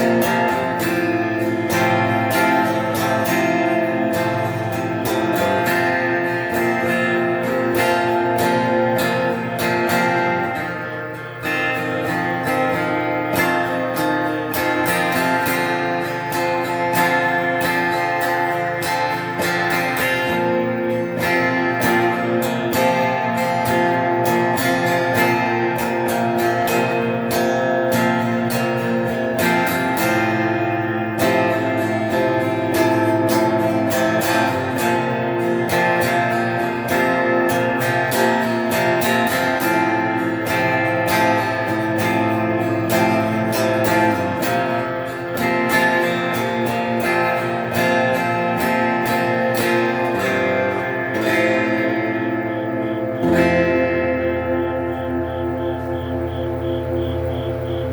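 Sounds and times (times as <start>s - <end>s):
electric guitar chords: 0.0s - 57.9s.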